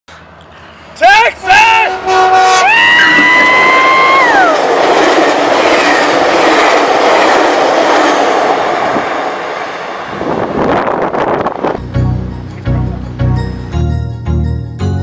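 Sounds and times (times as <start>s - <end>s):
train rushing along rails: 0.1s - 12.6s
train horn chord: 1.6s - 3.2s.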